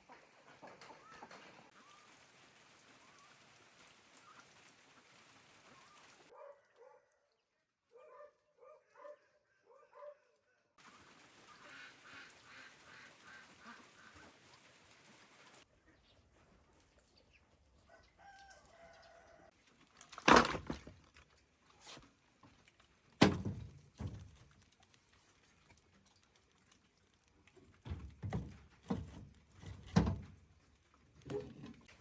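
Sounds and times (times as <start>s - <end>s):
faint chicken call: 17.9s - 19.5s.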